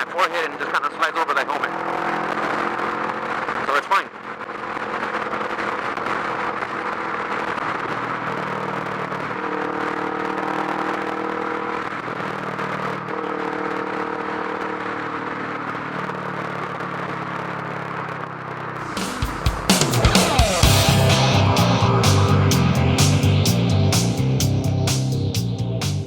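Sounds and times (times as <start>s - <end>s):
wind and road noise: 0.0s - 25.8s
motorcycle engine running: 12.4s - 26.0s.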